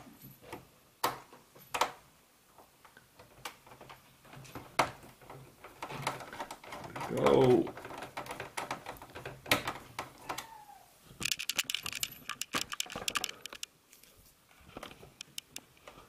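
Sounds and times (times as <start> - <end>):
screwdriver clicking on metal chassis: 11.2 - 13.7, 15.2 - 15.7.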